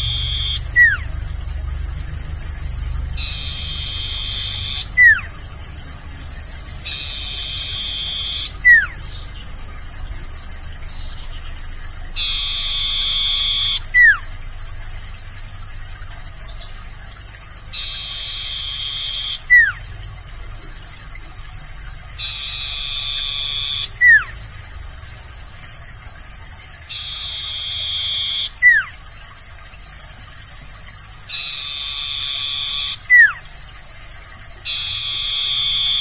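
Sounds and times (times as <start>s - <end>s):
bird song buzzy trill: 0.0s - 15.7s, 16.3s - 20.6s, 22.0s - 24.5s, 26.8s - 33.6s, 34.6s - 36.0s
falling whistle: 0.1s - 1.0s, 12.2s - 14.2s.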